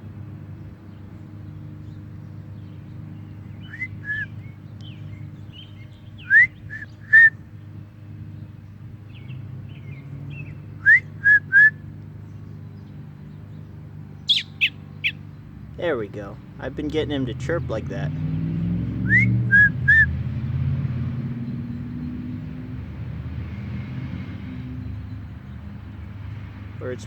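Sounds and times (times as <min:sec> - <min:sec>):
small bird chirping: 0:01.2 - 0:07.4, 0:12.2 - 0:15.4.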